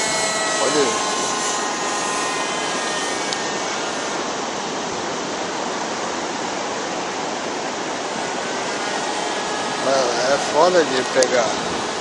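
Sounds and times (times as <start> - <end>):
model airplane engine drone: 0.0 - 12.0
wind noise: 10.3 - 12.0.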